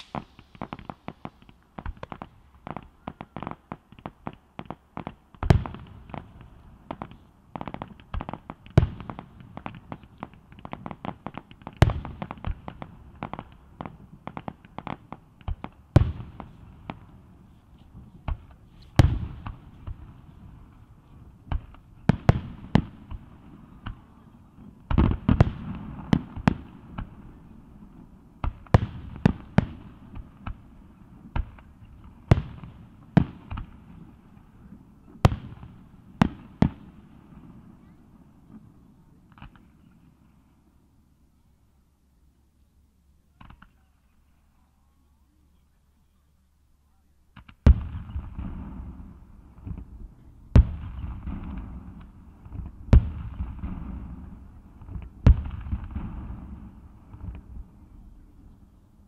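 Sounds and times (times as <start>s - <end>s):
firework shells booming: 0.0s - 4.4s, 47.4s - 57.7s
small firework pops: 0.0s - 20.3s, 21.5s - 24.2s, 28.4s - 30.6s, 39.3s - 40.0s, 43.4s - 43.9s, 47.3s - 49.0s, 49.6s - 57.7s.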